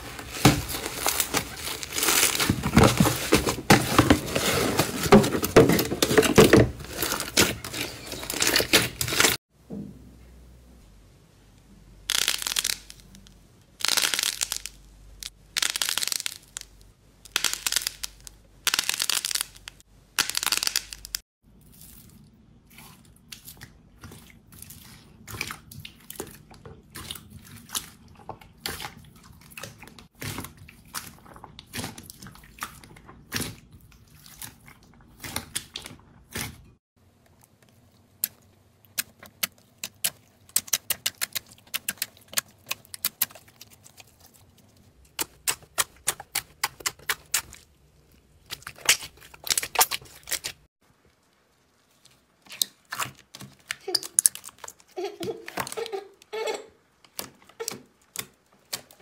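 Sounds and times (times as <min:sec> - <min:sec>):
crunchy slime crackling: 0:00.0 - 0:05.3, 0:38.0 - 0:54.9.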